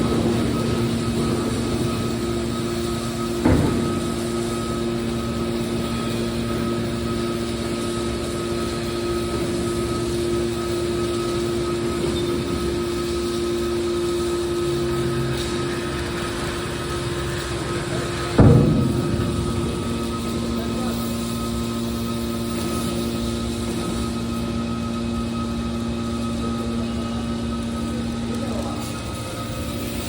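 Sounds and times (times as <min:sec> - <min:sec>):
hydraulic unit humming: 0:00.0 - 0:30.0
low machine tone: 0:00.0 - 0:30.0.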